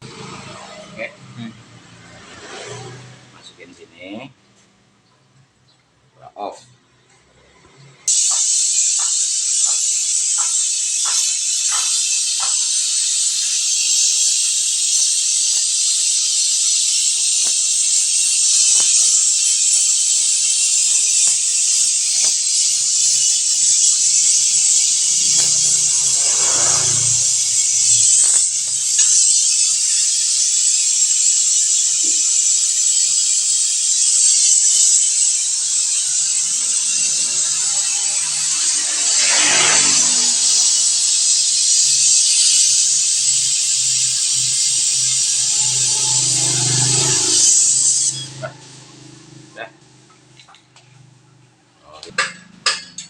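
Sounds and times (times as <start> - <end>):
loud steady hiss of pressurised flush: 8.1 - 50.3.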